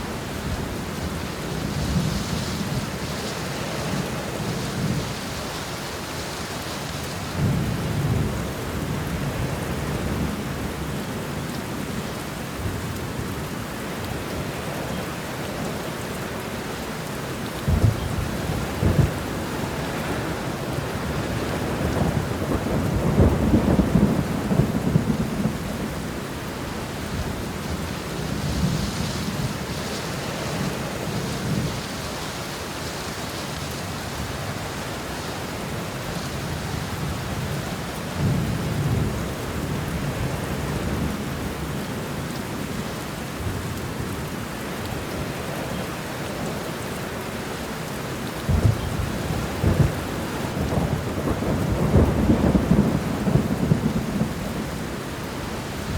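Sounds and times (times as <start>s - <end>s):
steady rain falling: 0.0s - 55.9s
rolling thunder: 17.7s - 26.1s, 48.5s - 55.9s.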